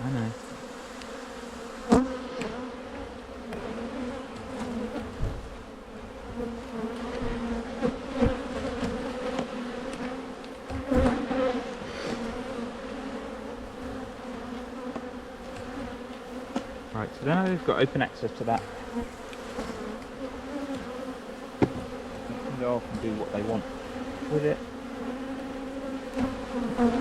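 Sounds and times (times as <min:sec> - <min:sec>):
bees buzzing: 0:00.0 - 0:27.0
knocks on wooden hive boxes: 0:06.2 - 0:11.2, 0:18.4 - 0:23.5.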